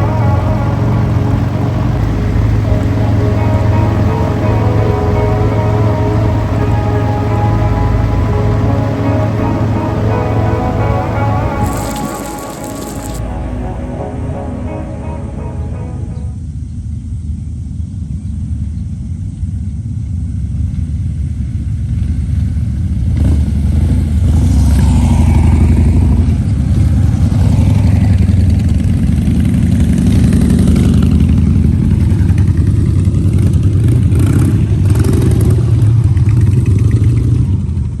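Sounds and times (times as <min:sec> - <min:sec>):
motorcycle engine revving: 0:28.1 - 0:37.9.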